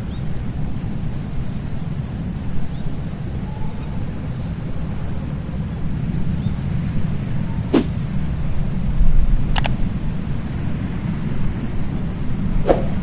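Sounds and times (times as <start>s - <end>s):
wind buffeting microphone: 0.1s - 13.0s
brief clicks: 9.6s - 9.8s.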